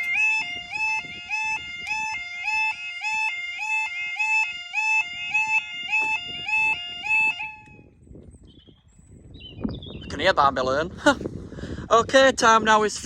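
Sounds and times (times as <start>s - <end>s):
level crossing two-tone alarm: 0.0s - 7.9s.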